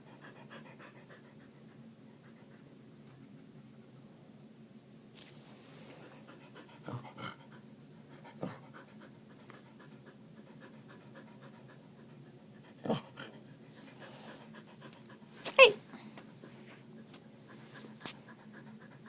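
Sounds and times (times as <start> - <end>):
dog panting rapidly: 0.0 - 2.9, 5.9 - 19.0.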